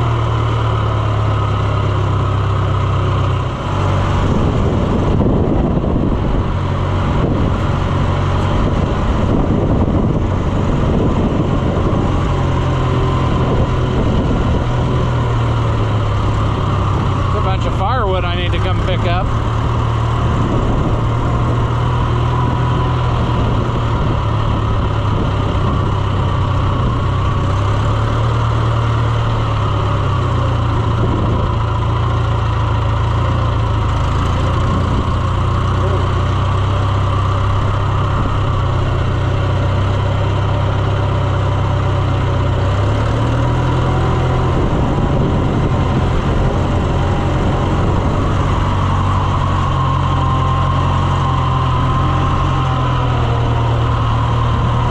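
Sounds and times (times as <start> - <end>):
farm vehicle engine running: 0.0 - 54.9.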